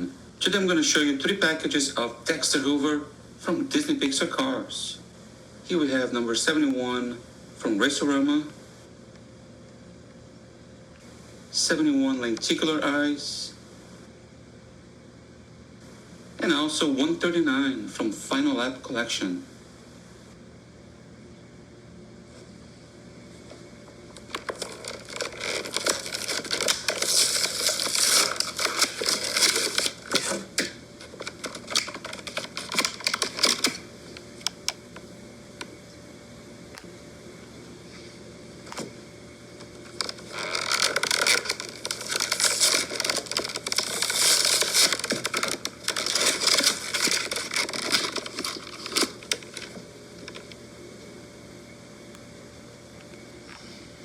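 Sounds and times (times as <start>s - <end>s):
faint room hiss: 0.0s - 54.0s
plastic packaging crinkling: 24.2s - 34.8s, 39.8s - 50.6s.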